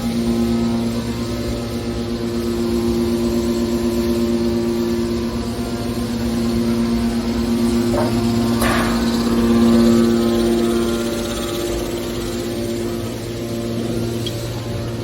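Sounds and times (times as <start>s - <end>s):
hydraulic baler humming: 4.8s - 15.0s
metal knocks: 7.9s - 9.4s.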